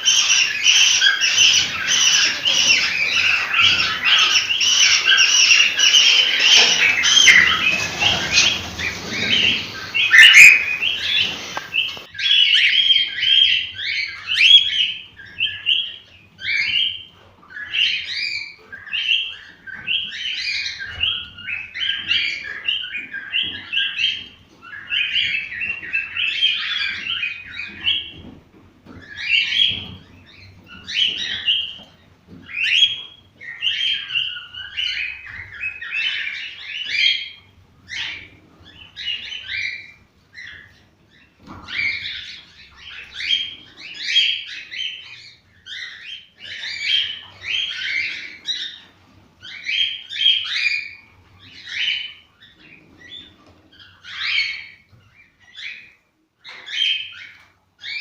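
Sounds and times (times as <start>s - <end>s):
background hiss: 0.0s - 12.1s
cockatiels chirping: 0.0s - 28.2s, 29.0s - 58.0s.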